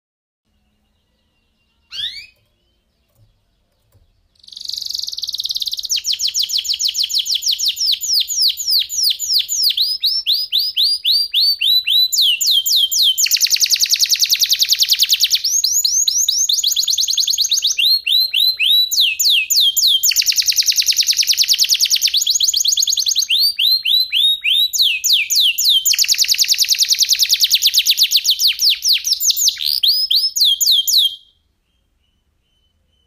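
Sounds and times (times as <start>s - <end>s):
canary singing: 0.5s - 33.0s.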